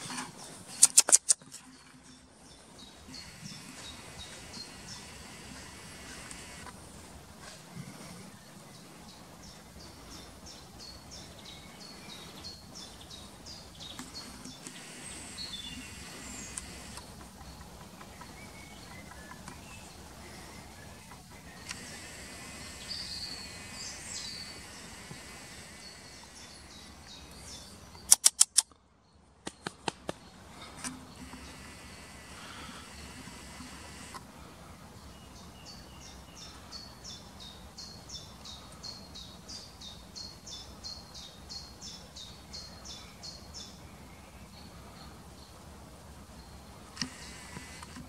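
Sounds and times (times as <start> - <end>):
outdoor background: 0.0 - 48.0
loud sharp clicks: 0.8 - 1.4, 14.0 - 17.3, 28.1 - 28.8, 29.4 - 30.2
birds chirping and singing: 0.8 - 6.7, 7.9 - 28.1.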